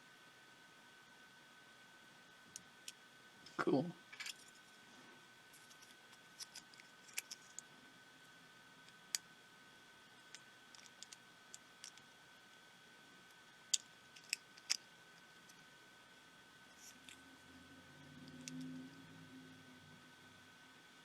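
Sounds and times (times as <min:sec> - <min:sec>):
small parts and tools clicking: 0:04.1 - 0:04.6, 0:05.5 - 0:07.7, 0:10.2 - 0:12.1, 0:13.7 - 0:15.6, 0:18.2 - 0:18.7.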